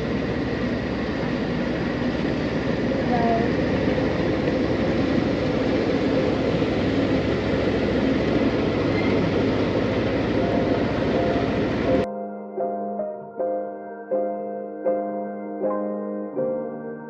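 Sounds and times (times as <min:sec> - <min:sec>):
boat engine rumbling: 0:00.0 - 0:12.1
piano music: 0:02.1 - 0:17.0.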